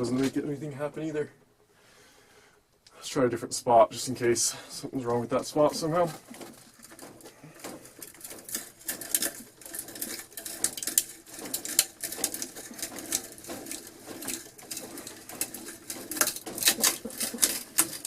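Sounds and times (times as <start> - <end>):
drill bit scraping and clicking on wood: 6.0 - 18.0.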